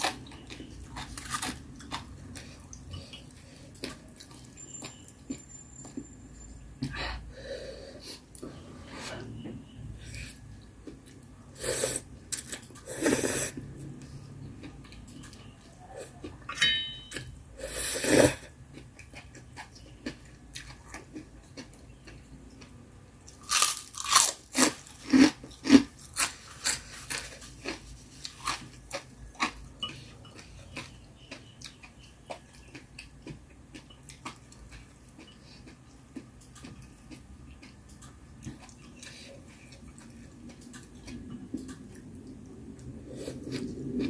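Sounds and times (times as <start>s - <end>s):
chewing: 0.0s - 6.0s, 18.4s - 44.0s
crunchy bites: 23.3s - 29.6s.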